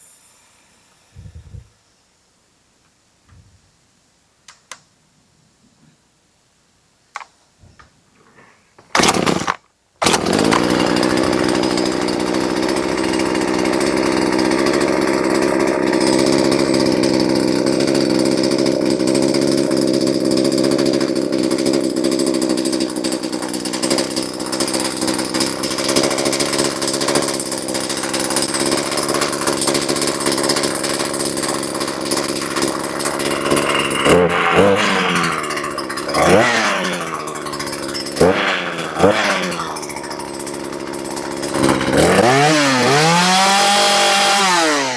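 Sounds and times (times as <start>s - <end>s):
chainsaw running: 9.0s - 44.9s.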